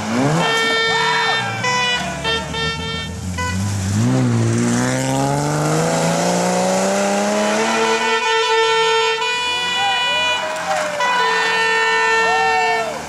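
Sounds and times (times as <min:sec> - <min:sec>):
rally car engine accelerating: 0:00.0 - 0:08.3
spectators' horns: 0:00.1 - 0:03.8, 0:07.1 - 0:13.0.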